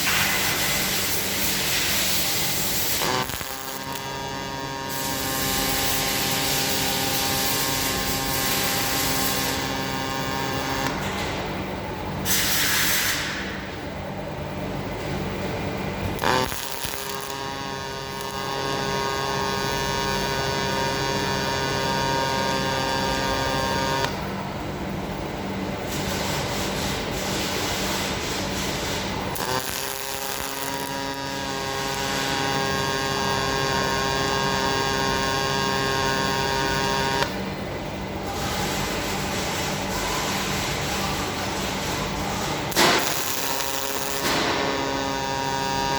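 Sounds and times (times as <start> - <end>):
welding arc striking click: 0.0 - 4.2, 4.9 - 11.6, 12.2 - 13.8, 16.0 - 24.2, 28.6 - 37.4, 42.4 - 45.9
welding arc buzzing hiss: 0.0 - 45.9.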